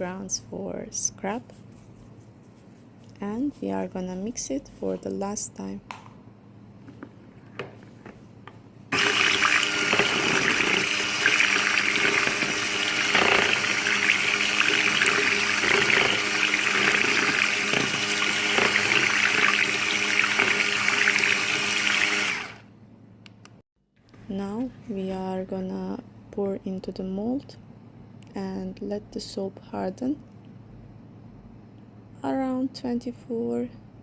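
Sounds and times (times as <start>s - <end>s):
electric hand mixer whirring: 8.9s - 22.7s.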